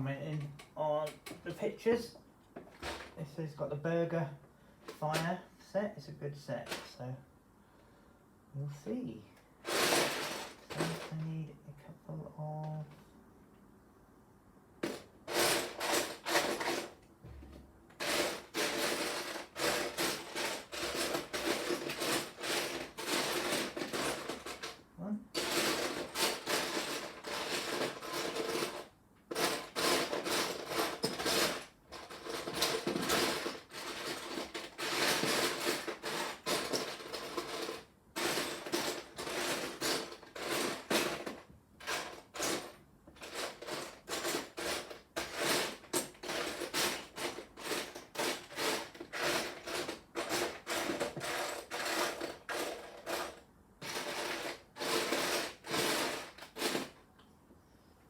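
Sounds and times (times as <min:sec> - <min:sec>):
plastic bricks clattering: 0:09.6 - 0:11.2, 0:14.8 - 0:17.0, 0:18.0 - 0:24.8, 0:25.4 - 0:57.0.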